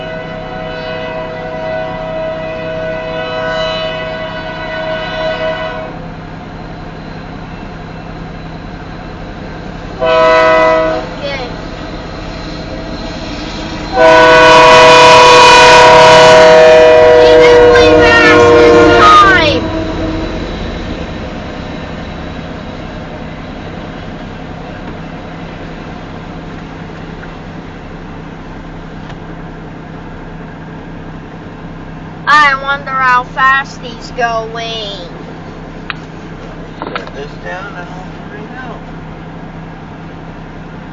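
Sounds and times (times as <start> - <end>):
locomotive air horn: 0.0 - 6.1, 10.0 - 11.6, 13.6 - 20.6
locomotive engines rumbling: 0.0 - 40.9.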